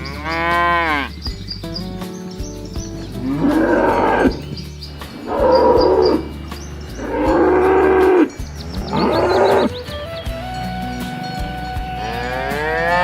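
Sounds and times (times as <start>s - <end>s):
cows mooing: 0.0s - 1.2s, 3.1s - 9.9s, 12.0s - 13.0s
background music: 0.0s - 13.0s.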